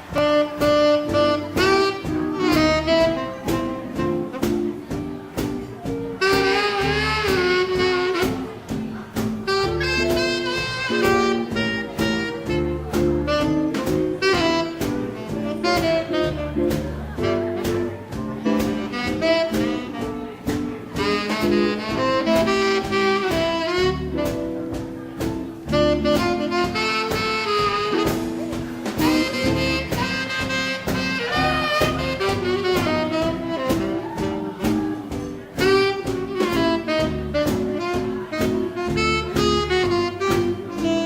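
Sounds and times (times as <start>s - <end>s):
saxophone melody: 0.0s - 41.0s
swing band playing: 0.0s - 41.0s.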